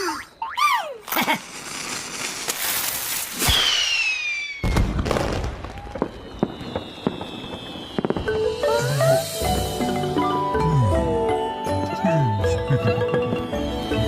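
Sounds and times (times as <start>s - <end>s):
sharp crackles: 1.1s - 8.9s
rushing hiss with falling whistle: 3.3s - 4.8s, 5.6s - 10.5s.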